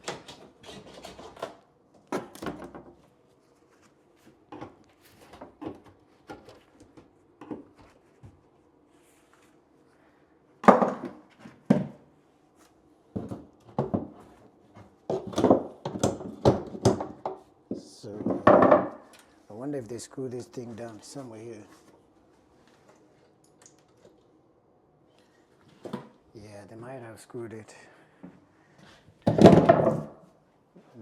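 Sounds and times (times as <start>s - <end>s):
wooden knocks and clunks: 18.1s - 19.0s, 29.2s - 30.2s.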